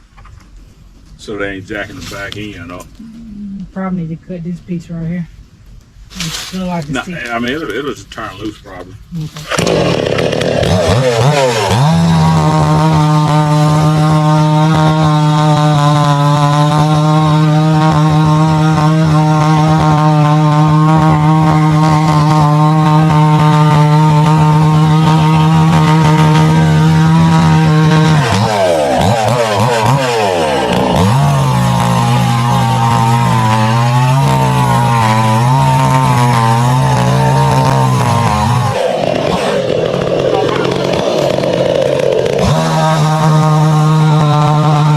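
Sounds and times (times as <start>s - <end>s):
chainsaw cutting a log: 9.4s - 44.9s.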